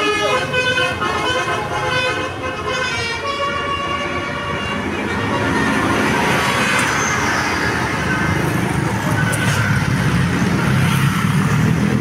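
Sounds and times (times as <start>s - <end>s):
bus horn chord: 0.0s - 6.8s
bus engine and tyres passing: 0.0s - 12.0s.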